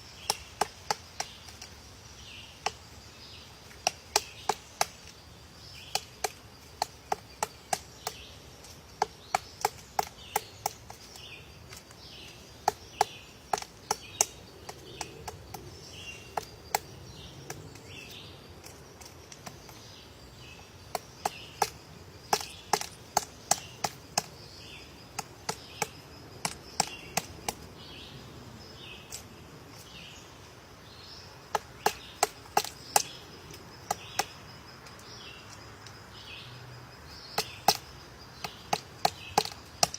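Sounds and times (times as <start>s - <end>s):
woodpecker pecking at wood: 0.2s - 1.9s, 2.6s - 2.9s, 3.6s - 27.7s, 31.4s - 36.0s, 37.2s - 39.9s.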